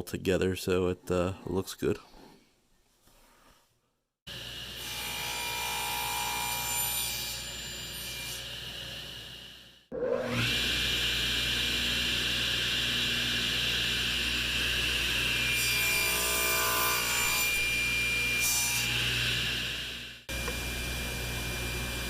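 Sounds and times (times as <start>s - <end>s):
power saw cutting wood: 9.9s - 22.0s.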